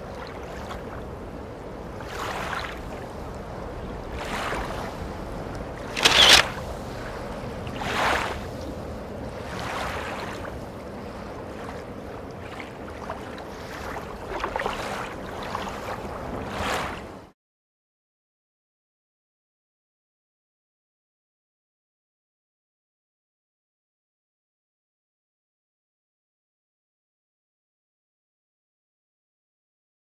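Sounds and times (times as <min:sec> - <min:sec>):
low rumble of wind: 0:00.0 - 0:17.3
small waves washing in: 0:00.0 - 0:17.3.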